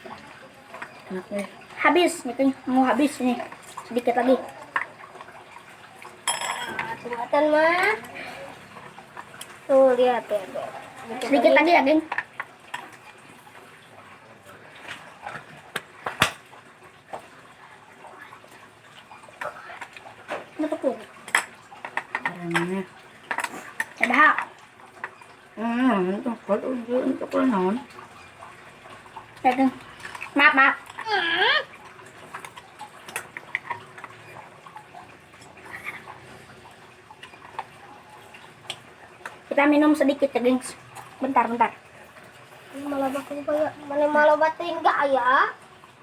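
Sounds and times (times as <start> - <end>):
quiet eating noises: 0.0 - 44.7
wet eating mouth sounds: 35.5 - 36.4.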